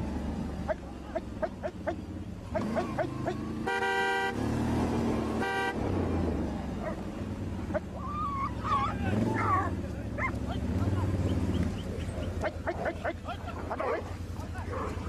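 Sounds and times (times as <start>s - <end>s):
low engine rumble: 0.0s - 15.0s
vehicle horn tooting: 3.5s - 6.2s.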